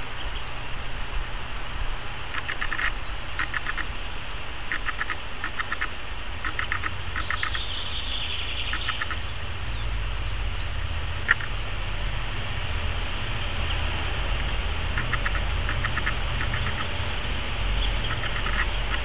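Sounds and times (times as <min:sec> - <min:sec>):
steady low rumble: 0:00.0 - 0:19.0
bird chattering calls: 0:02.3 - 0:04.0, 0:04.7 - 0:11.6, 0:13.2 - 0:19.0.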